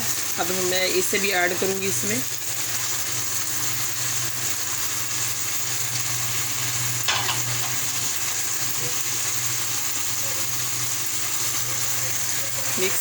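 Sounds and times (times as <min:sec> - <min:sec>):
food sizzling in a pan: 0:00.0 - 0:13.0
spoon knocking against pan: 0:07.1 - 0:07.9.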